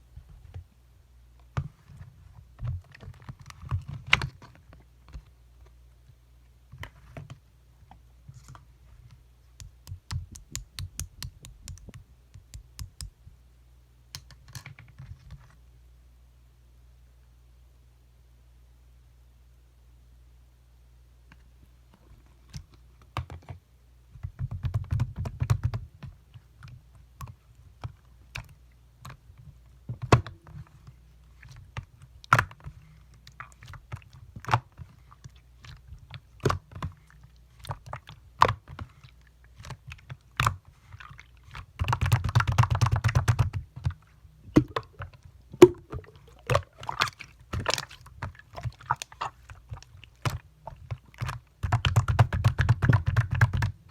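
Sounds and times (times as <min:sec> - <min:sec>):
clicks and pops of air: 0:09.6 - 0:13.2, 0:44.5 - 0:53.8.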